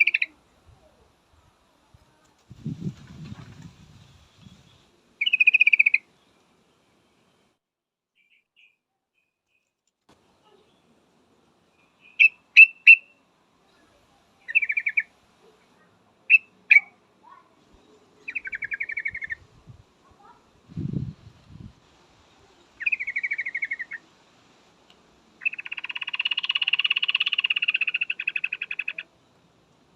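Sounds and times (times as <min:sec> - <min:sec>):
bird chirps and chatters: 0:00.0 - 0:00.4, 0:04.4 - 0:06.1, 0:11.8 - 0:19.6, 0:22.3 - 0:24.1, 0:25.4 - 0:29.2.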